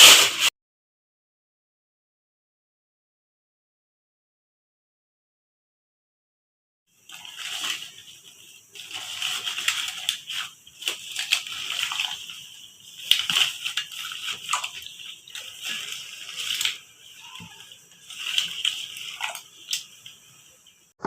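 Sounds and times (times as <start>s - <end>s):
water splashing and sloshing: 7.0s - 21.0s.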